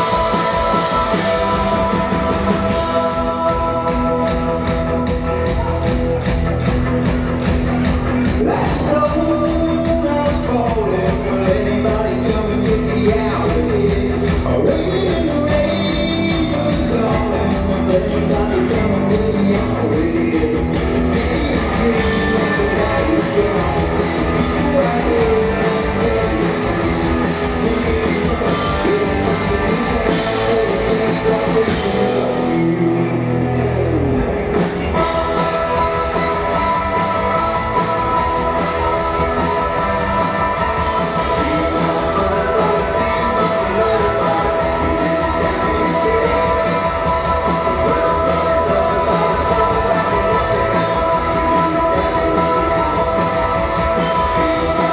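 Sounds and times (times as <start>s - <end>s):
person singing: 0.0s - 6.0s, 7.7s - 33.5s, 35.0s - 54.9s
drums: 0.0s - 54.9s
electric guitars: 0.0s - 54.9s.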